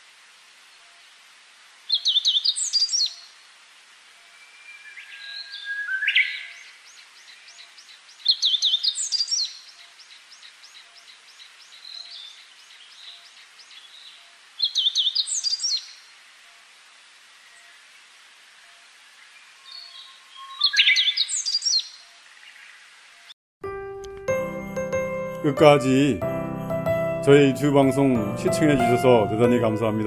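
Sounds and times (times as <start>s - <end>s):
birds calling softly: 1.9s - 3.4s, 4.2s - 23.4s
songbird singing high notes: 4.3s - 6.8s, 19.3s - 22.0s.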